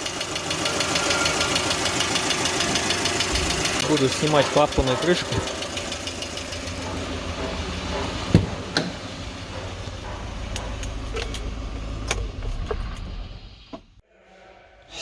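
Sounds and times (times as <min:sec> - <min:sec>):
low steady rumble: 0:03.3 - 0:14.0.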